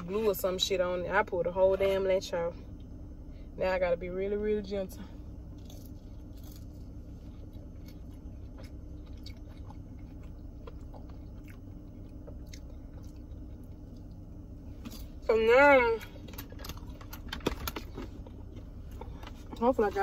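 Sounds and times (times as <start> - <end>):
low hum inside car: 0.0 - 20.0
person chewing: 5.5 - 15.2.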